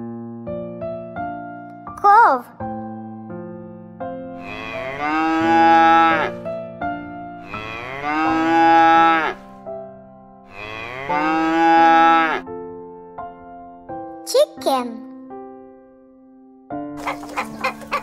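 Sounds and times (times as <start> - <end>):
soft keyboard music: 0.0 - 18.0
cow mooing: 4.4 - 6.4, 7.4 - 9.5, 10.5 - 12.4.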